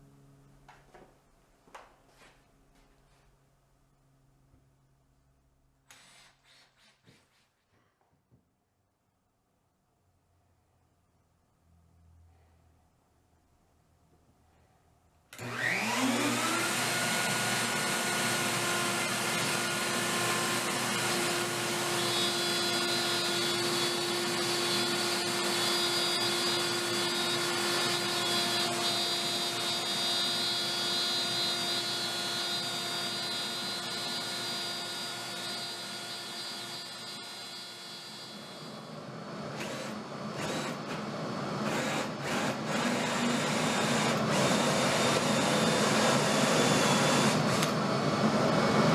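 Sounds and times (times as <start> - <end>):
power tool motor whining: 15.4 - 48.9.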